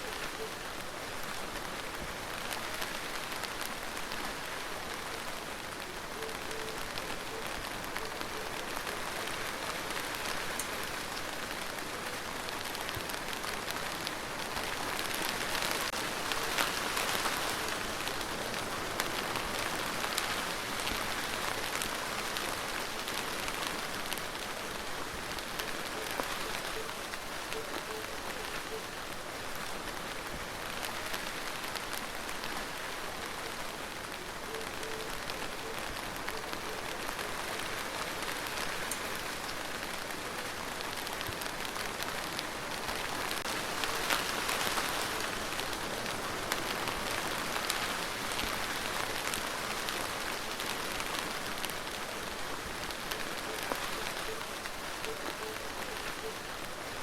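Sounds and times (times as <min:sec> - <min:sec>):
rain hissing: 0:00.0 - 0:57.0
raindrop ticks: 0:06.2 - 0:28.9.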